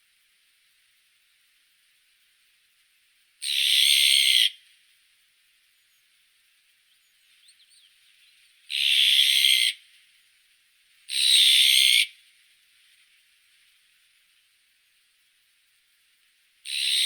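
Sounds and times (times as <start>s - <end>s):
magpie harsh calls: 3.4s - 4.6s, 8.7s - 9.8s, 11.1s - 12.1s, 16.7s - 17.0s
faint thin chirps: 5.7s - 8.6s.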